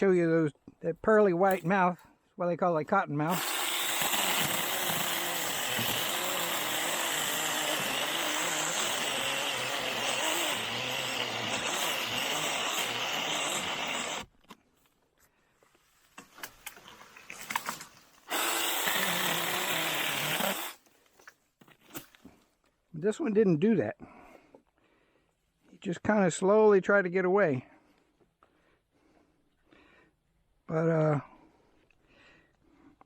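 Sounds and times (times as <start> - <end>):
mini chainsaw cutting saplings: 3.2 - 14.3, 17.4 - 20.8.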